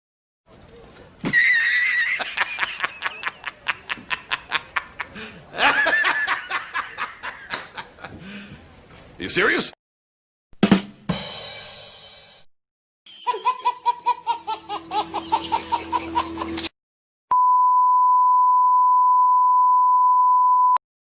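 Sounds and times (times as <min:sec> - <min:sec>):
quick rhythmic laugh: 0:13.1 - 0:16.7
steady beep tone: 0:17.3 - 0:20.8.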